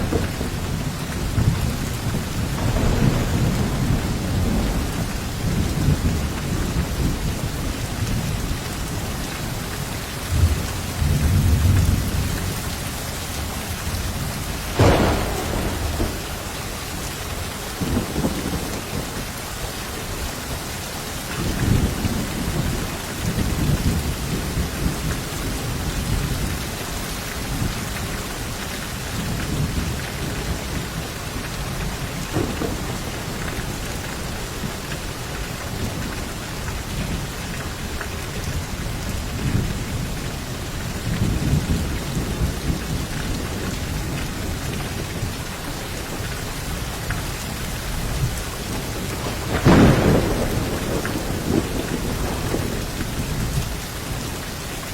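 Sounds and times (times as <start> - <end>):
sharp thunder crack: 0.0 - 6.2, 14.7 - 19.1, 49.0 - 52.8
thunder rumbling: 0.0 - 9.6, 10.2 - 20.3, 29.1 - 45.4, 47.6 - 54.4
heavy rain falling: 0.0 - 54.9.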